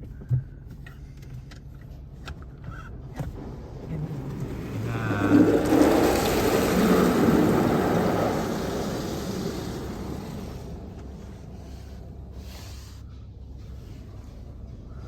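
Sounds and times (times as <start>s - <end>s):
car wash water spray on car: 3.2s - 14.5s.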